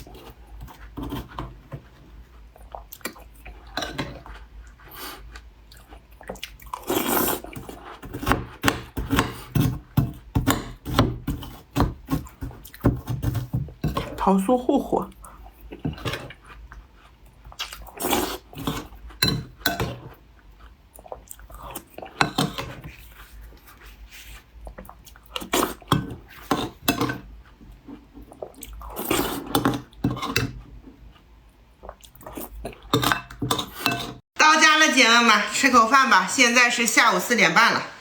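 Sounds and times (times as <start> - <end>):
person chewing crunchy cookie: 1.9 - 8.6, 15.1 - 19.2, 20.2 - 22.2.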